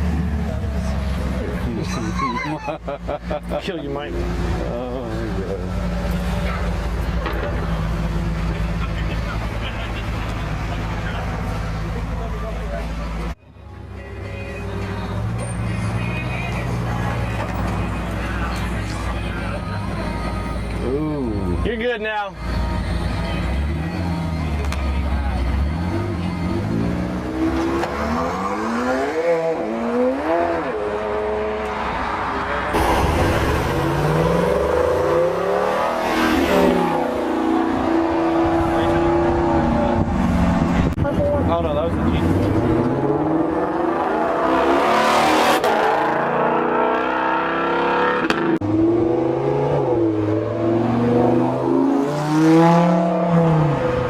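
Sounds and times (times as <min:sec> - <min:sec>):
car engine revving: 0:25.4 - 0:54.0.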